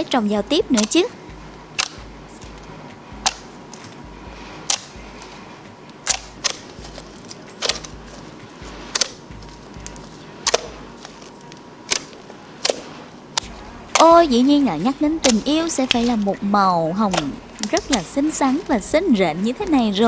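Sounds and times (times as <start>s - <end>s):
faint steady background noise: 0.0s - 20.0s
sharp clicks: 0.7s - 4.0s, 8.9s - 20.0s.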